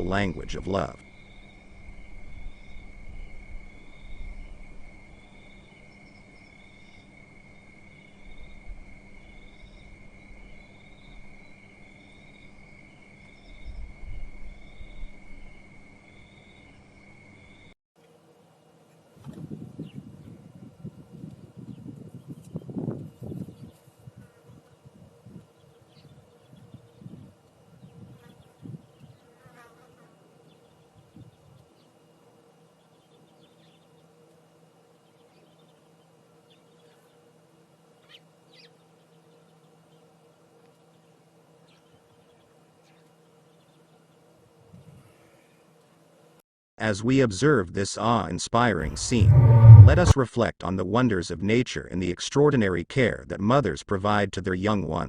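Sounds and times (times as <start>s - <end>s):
insects buzzing and chirping: 0.0s - 17.7s
low rumble: 48.8s - 50.2s.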